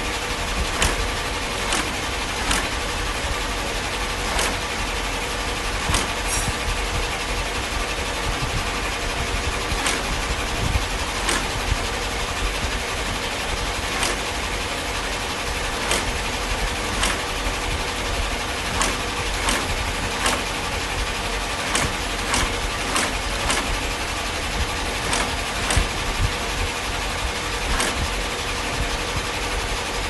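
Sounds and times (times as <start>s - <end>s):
machinery humming: 0.0s - 30.0s
sharp machine clicks: 0.0s - 30.0s.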